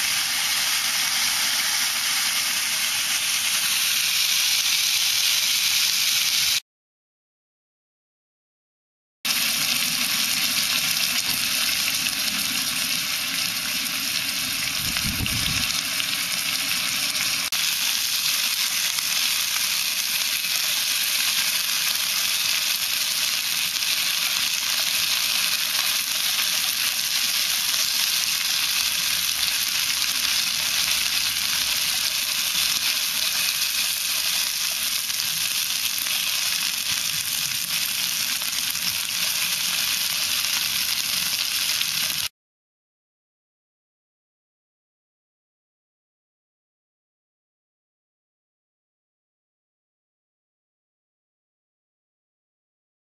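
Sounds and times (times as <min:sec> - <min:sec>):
food sizzling in a pan: 0:00.0 - 0:06.6, 0:09.3 - 0:42.3.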